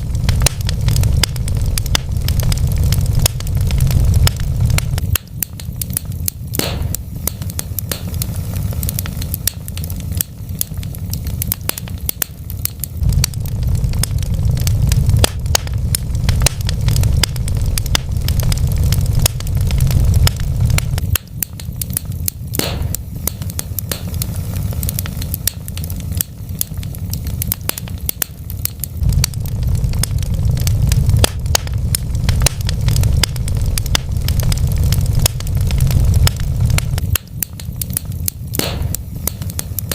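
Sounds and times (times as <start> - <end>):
burning logs crackling and popping: 0.0 - 39.9
low rumble of flames: 0.0 - 39.9.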